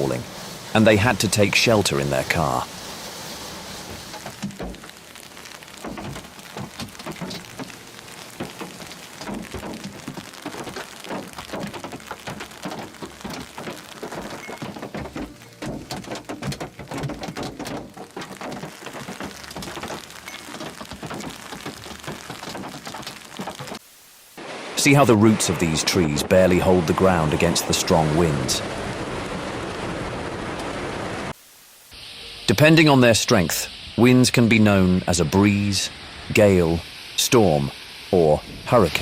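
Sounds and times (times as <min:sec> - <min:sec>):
hail clattering: 0:00.0 - 0:23.8, 0:24.8 - 0:31.3
rush of falling ice and rain: 0:00.0 - 0:39.0.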